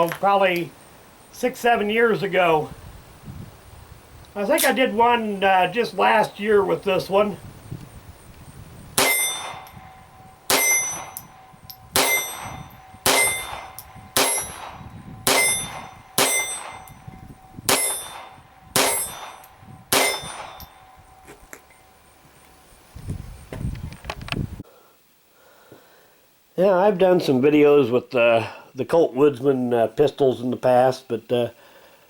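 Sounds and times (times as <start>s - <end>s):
pistol shots with metallic ring: 9.0s - 21.2s.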